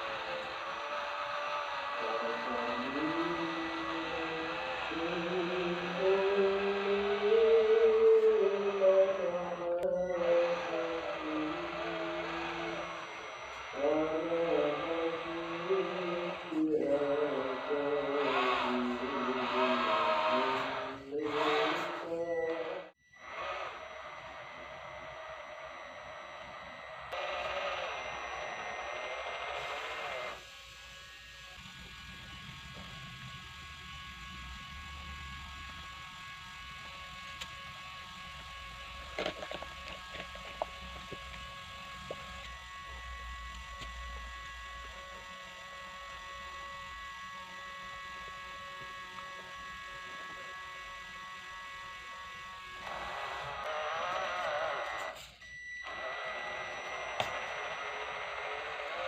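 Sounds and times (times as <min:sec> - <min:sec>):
small electric motor whining: 0:00.0 - 0:59.0.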